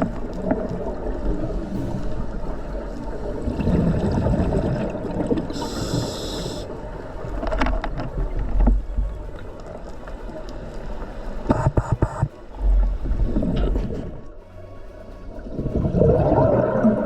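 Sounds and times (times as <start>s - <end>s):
regulator hissing inhalation: 5.5s - 6.8s
bubbling exhaled air: 15.8s - 17.0s.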